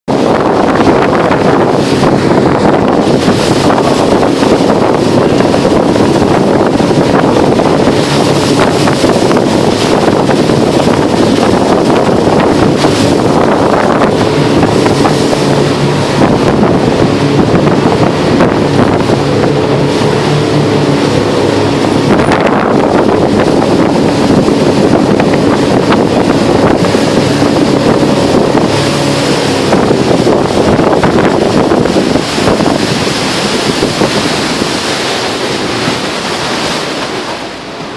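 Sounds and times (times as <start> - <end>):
rushing water: 0.0 - 37.9
speedboat engine hum: 0.0 - 37.9
wind buffeting microphone: 0.0 - 37.9.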